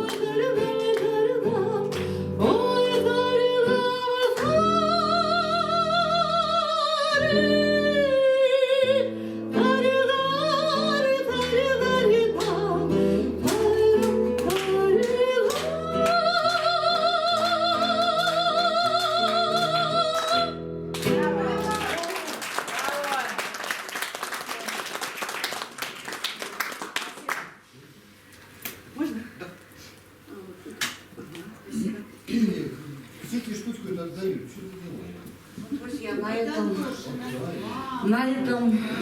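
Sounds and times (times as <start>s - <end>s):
person singing: 0.0s - 20.6s
acoustic guitar: 0.0s - 22.0s.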